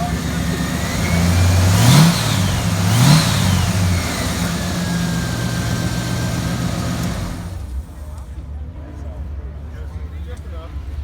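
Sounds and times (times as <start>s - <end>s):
car engine revving and idling: 0.0s - 8.0s.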